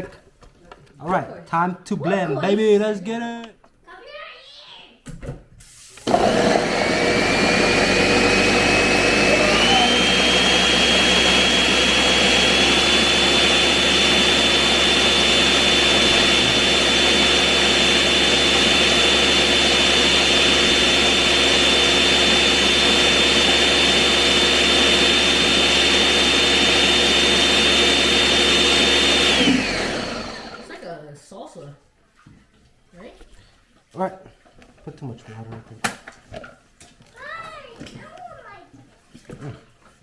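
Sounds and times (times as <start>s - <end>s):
blender motor whining: 6.0s - 30.8s.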